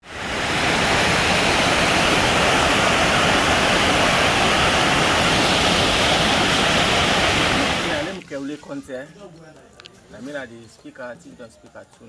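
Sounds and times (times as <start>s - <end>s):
waterfall rushing: 0.0s - 8.2s.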